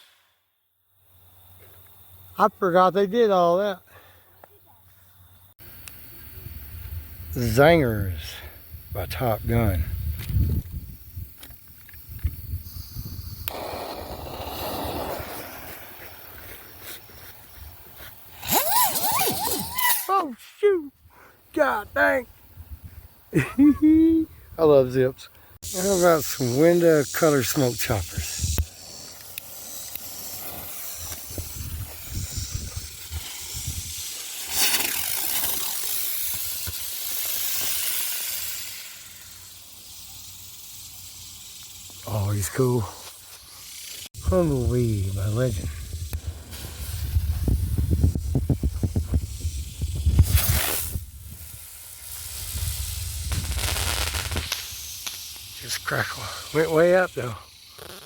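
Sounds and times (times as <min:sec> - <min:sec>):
firework fuse click: 0:00.0 - 0:00.5, 0:10.2 - 0:16.3, 0:18.1 - 0:20.4, 0:25.7 - 0:44.1, 0:45.2 - 0:58.0
firework spraying hiss: 0:00.0 - 0:00.5, 0:05.5 - 0:22.2, 0:23.4 - 0:58.0.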